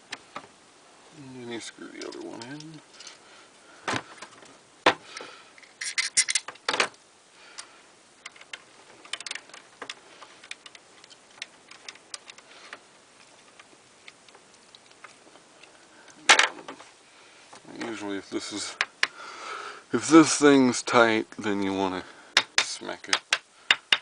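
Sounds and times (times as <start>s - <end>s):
metal parts clicking and knocking: 5.6s - 7.0s, 7.6s - 15.2s.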